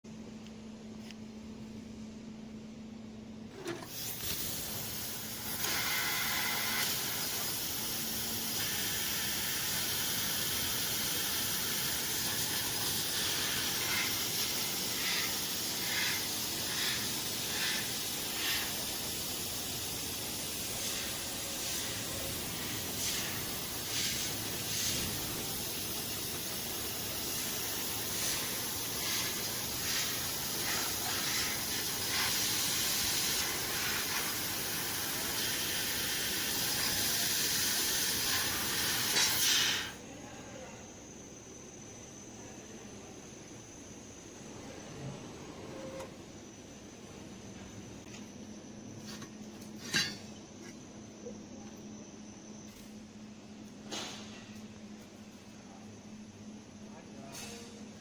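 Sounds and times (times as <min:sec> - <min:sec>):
laser cutter hissing: 0:03.8 - 0:40.0.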